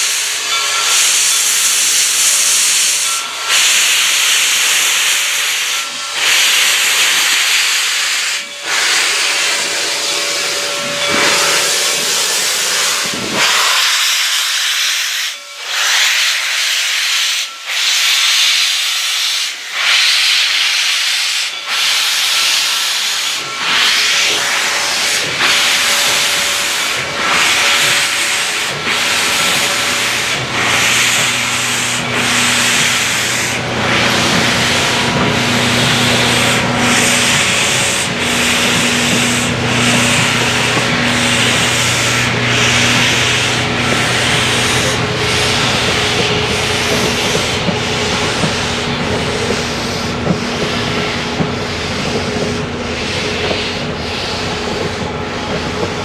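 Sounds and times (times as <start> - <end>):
steam locomotive hissing: 0.0 - 56.0
low hum: 23.4 - 53.9.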